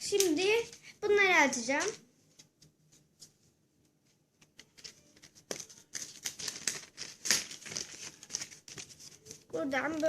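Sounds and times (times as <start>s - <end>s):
packaging torn and crinkled: 4.8s - 9.2s.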